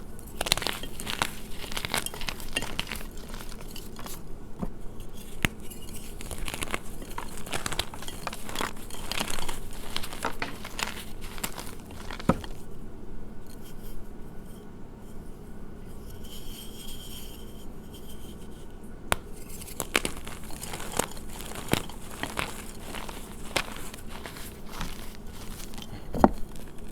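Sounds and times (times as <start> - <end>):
chalk crunching by hand: 0.0 - 4.3, 5.3 - 12.6, 19.2 - 26.9.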